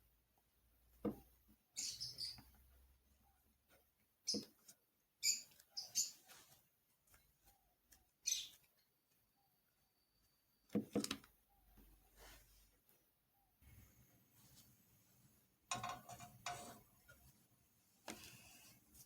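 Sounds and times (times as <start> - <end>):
kitchen clicks and clatters: 15.7 - 16.9.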